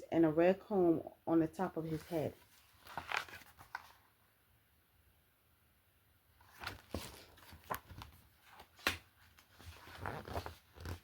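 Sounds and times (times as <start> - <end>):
paper pages rustling: 1.8 - 4.1, 6.4 - 11.0.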